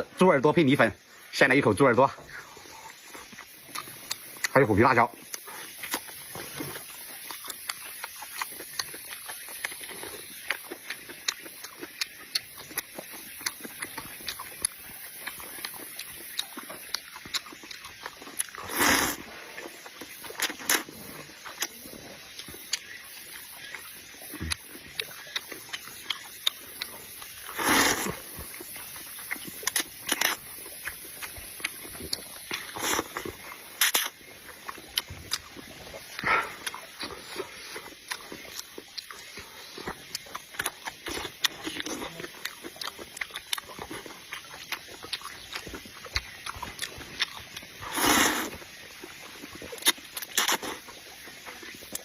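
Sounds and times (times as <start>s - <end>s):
crunchy chewing: 2.2s - 52.0s
slurps or gulps: 2.7s - 22.9s, 24.4s - 52.0s.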